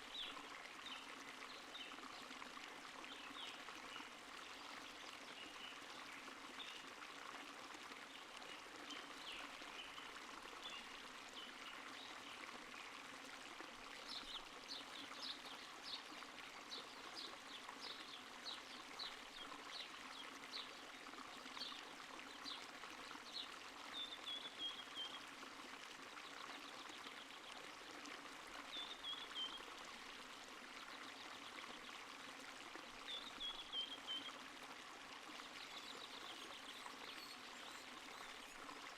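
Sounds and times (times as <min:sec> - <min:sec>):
stream trickling and babbling: 0:00.0 - 0:38.9.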